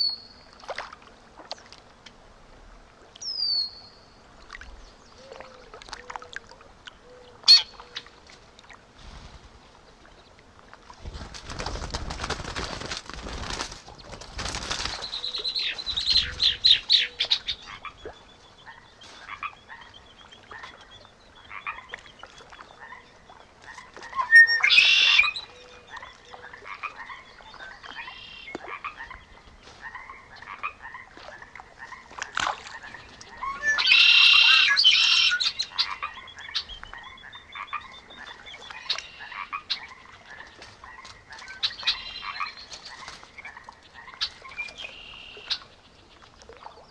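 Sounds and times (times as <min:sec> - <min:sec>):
birds calling: 0:06.9 - 0:08.2, 0:13.9 - 0:46.8
frogs calling in chorus: 0:23.7 - 0:45.7.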